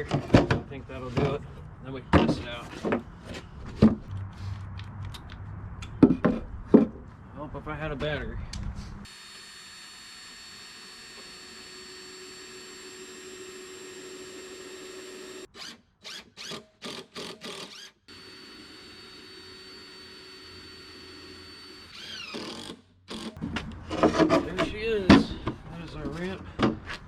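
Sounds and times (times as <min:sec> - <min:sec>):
cordless drill running: 0:09.0 - 0:15.7, 0:16.4 - 0:23.4.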